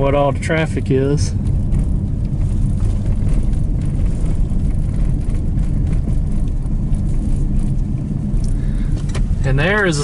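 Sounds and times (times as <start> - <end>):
car engine and tyres rumbling: 0.0 - 10.0.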